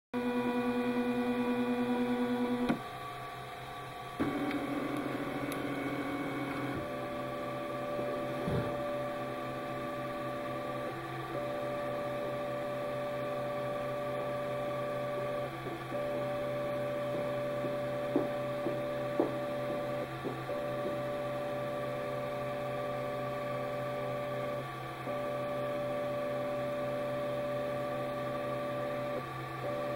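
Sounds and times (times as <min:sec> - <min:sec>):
constant hum: 0:00.3 - 0:29.9
stepper motors whining: 0:04.2 - 0:18.2.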